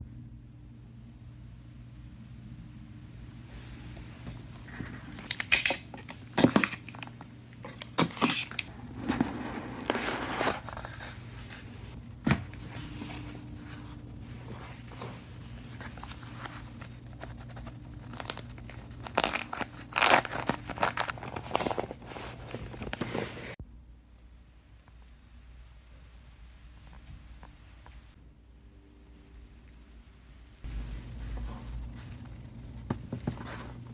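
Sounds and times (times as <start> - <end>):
packaging crinkling and tearing: 4.7 - 11.8, 15.0 - 23.6.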